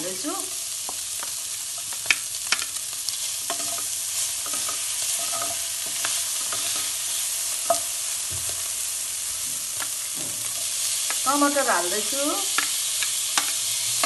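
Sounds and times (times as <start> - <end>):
chicken sizzling in a pan: 0.0 - 14.0
spoon stirring in a pan: 0.8 - 8.1, 12.5 - 13.7.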